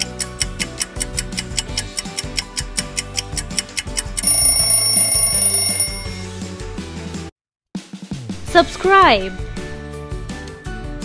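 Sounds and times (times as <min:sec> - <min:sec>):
timer ticking rapidly: 0:00.0 - 0:06.2
background music: 0:00.0 - 0:07.3
alarm ringing: 0:04.2 - 0:06.2.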